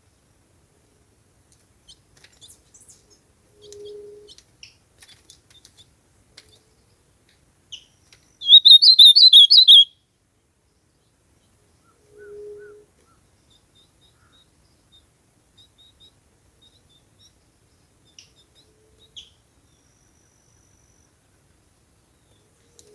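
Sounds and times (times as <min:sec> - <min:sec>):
bird chirps and warbling song: 0:08.4 - 0:09.9.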